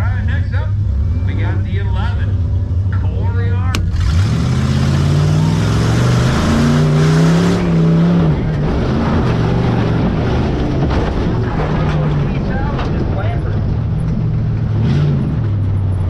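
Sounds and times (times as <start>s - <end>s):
truck engine revving hard: 0.0s - 16.0s.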